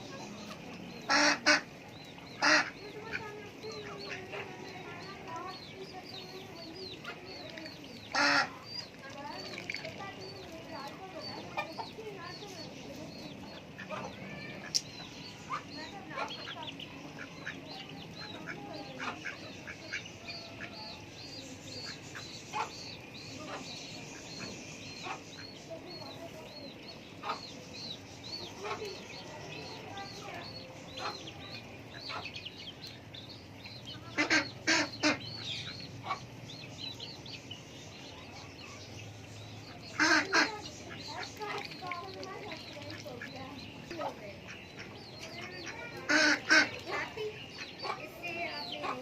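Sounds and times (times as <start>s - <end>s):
poultry calling: 0.0s - 9.4s, 13.4s - 27.6s, 28.4s - 37.1s, 39.7s - 49.0s
loud harsh poultry calls: 1.0s - 4.6s, 8.1s - 8.6s, 34.0s - 36.3s, 39.8s - 41.7s, 44.4s - 49.0s.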